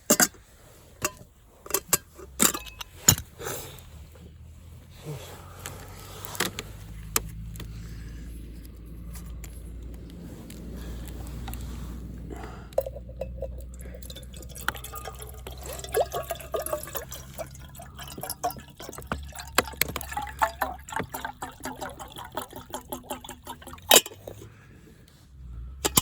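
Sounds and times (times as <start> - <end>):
liquid dripping and gurgling: 12.7 - 24.4.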